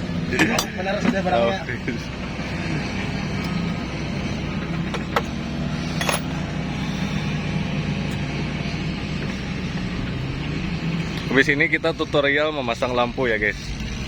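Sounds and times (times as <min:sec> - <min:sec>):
engine idling: 0:00.0 - 0:14.0
metallic clinks: 0:04.8 - 0:06.4.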